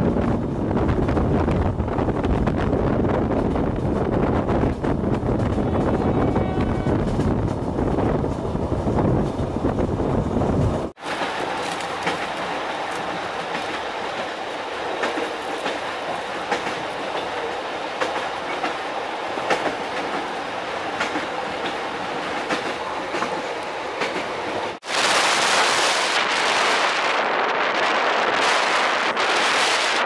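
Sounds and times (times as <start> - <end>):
train rumble inside carriage: 0.0 - 29.9
steady rushing noise: 24.7 - 30.0.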